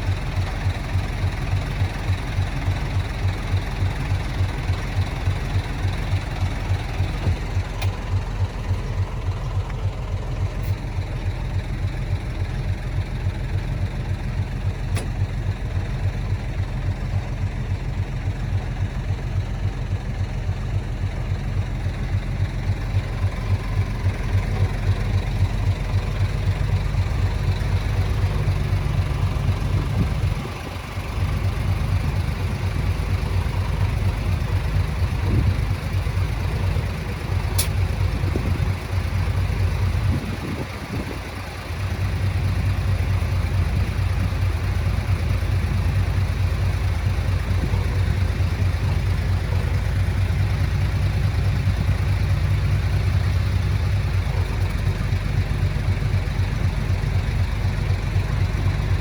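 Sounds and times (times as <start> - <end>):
bulldozer diesel engine running: 0.0 - 59.0
short sharp click: 37.6 - 37.8.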